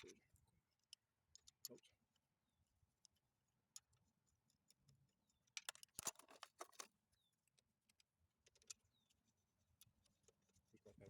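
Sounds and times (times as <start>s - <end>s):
small metal parts clinking: 3.7s - 9.1s.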